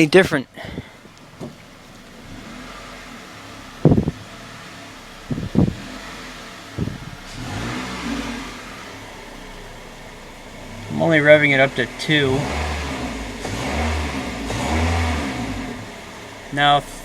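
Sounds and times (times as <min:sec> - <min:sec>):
car engine running: 0:00.0 - 0:17.0
engine revving: 0:01.2 - 0:17.0.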